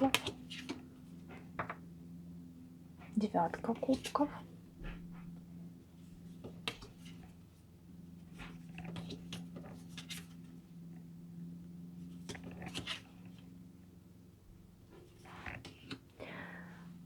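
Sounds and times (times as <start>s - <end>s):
cards clicking and rustling: 8.8s - 10.5s, 12.3s - 13.1s.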